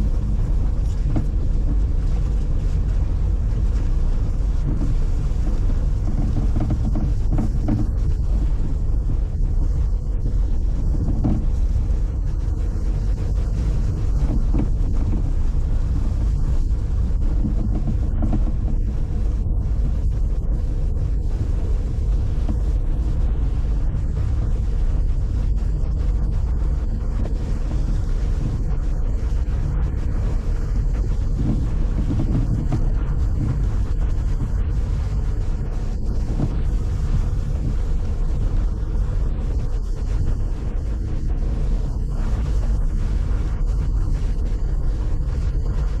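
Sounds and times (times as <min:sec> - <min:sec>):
wind noise on microphone: 0:00.0 - 0:46.0.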